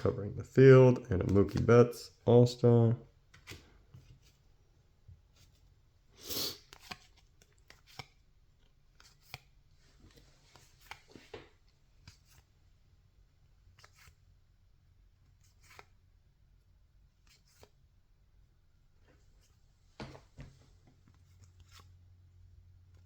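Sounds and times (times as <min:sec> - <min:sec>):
cards swishing: 0:01.2 - 0:01.7, 0:21.1 - 0:21.9.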